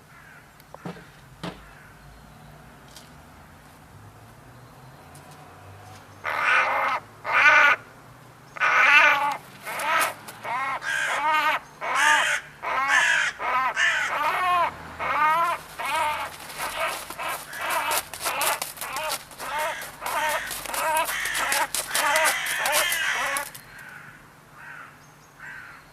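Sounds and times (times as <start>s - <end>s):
crow cawing: 0.1s - 0.5s, 6.2s - 7.9s, 8.6s - 25.8s.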